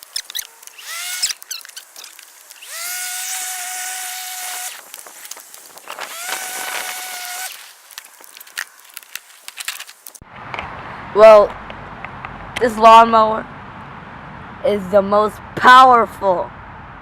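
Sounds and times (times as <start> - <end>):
electric lawn mower motor whining: 0.0 - 8.9.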